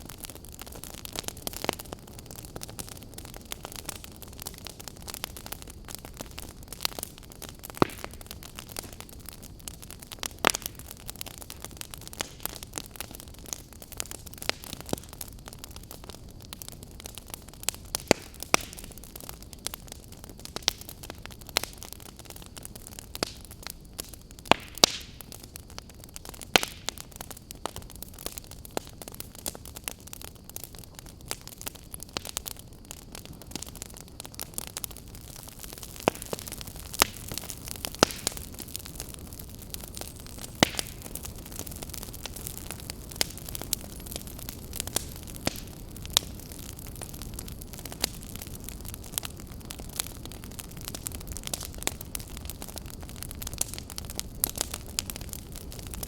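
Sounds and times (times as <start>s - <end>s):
campfire hissing: 0.0s - 56.0s
wood crackling and popping: 0.0s - 56.0s.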